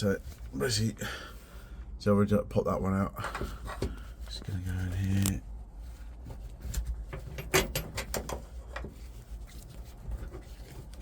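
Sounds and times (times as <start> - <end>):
hands working a copper line: 3.2 - 11.0.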